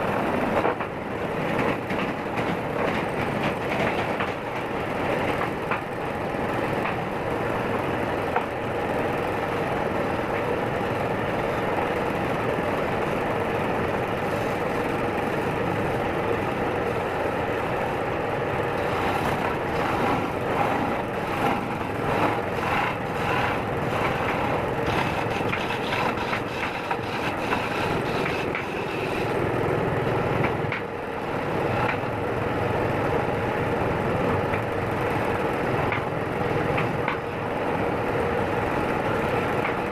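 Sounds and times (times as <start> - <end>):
rapid scraping and knocking: 18.8 - 29.3
turning tool cutting wood: 18.8 - 29.3.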